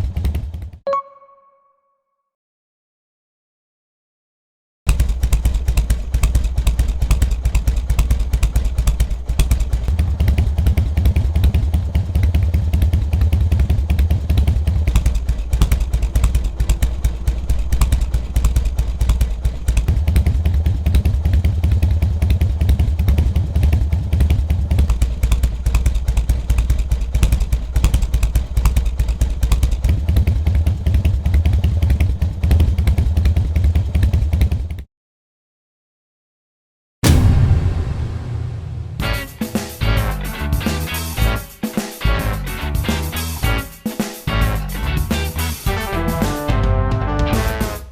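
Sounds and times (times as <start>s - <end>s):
motorcycle exhaust rumble at idle: 0.0s - 0.8s, 4.9s - 34.9s.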